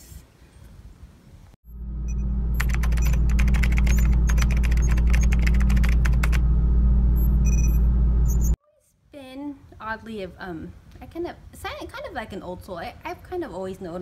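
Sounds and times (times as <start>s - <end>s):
loud low hum: 1.6s - 8.6s.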